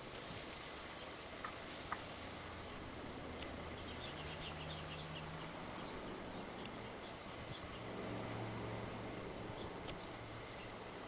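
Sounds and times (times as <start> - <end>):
faint low hum: 0.0 - 11.0
wind hiss: 0.0 - 11.0
high bird chirps: 3.7 - 7.9.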